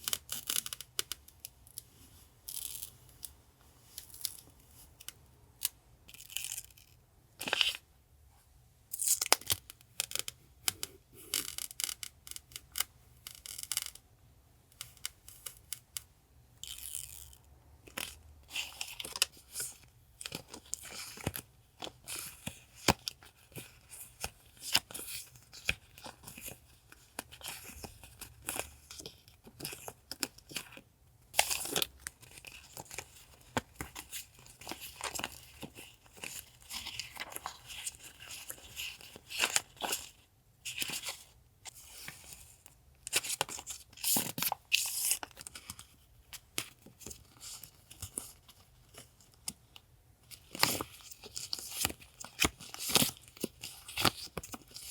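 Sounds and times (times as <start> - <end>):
packaging crinkling and tearing: 31.4 - 42.4, 50.4 - 54.9.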